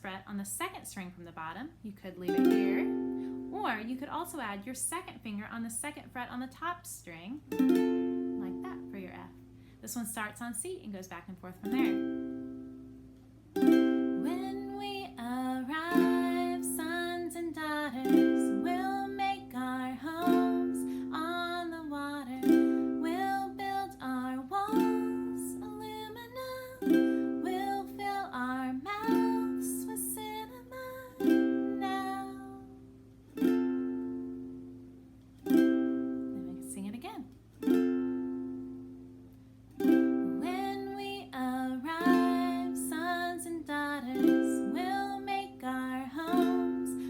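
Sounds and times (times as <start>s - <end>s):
ukulele strumming: 2.2s - 4.4s, 7.4s - 10.4s, 11.4s - 47.0s
person singing: 13.6s - 32.8s, 40.2s - 47.0s.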